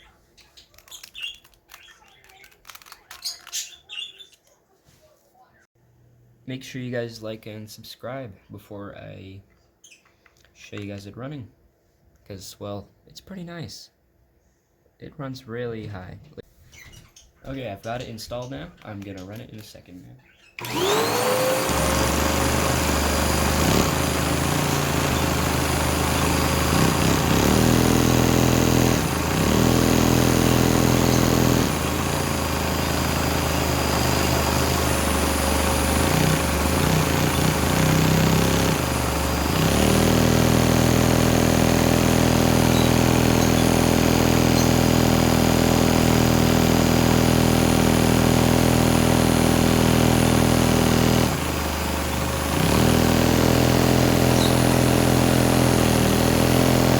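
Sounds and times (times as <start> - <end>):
small engine chugging: 0.8 - 4.3, 20.5 - 56.9
vacuum cleaner motor: 20.6 - 56.9.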